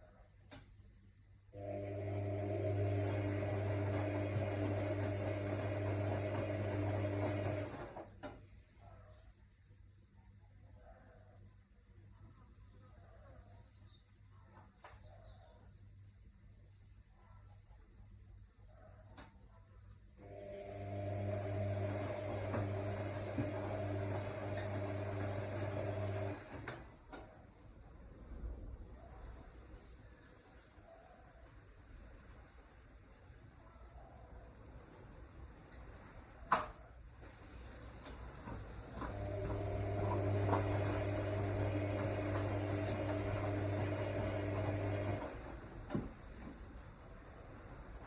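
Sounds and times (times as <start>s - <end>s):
washing machine humming: 1.4s - 9.2s, 20.1s - 31.0s, 34.5s - 48.0s.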